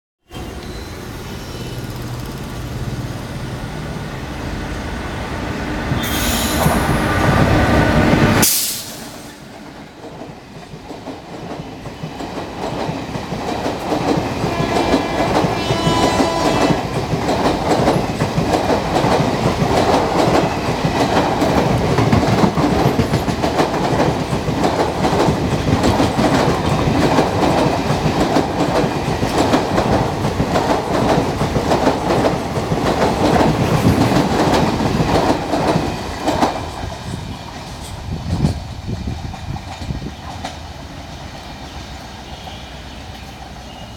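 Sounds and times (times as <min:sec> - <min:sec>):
train wheels clattering over rails: 0:05.9 - 0:42.4
locomotive horn: 0:14.4 - 0:16.8.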